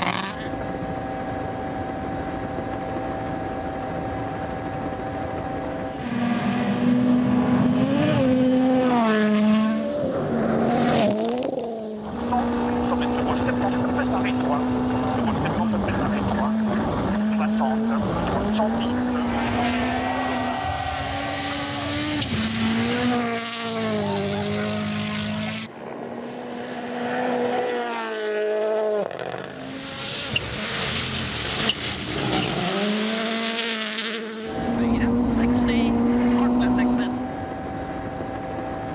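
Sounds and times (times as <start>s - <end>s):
steady drone: 0.0s - 10.4s
rally car engine revving: 0.0s - 38.9s.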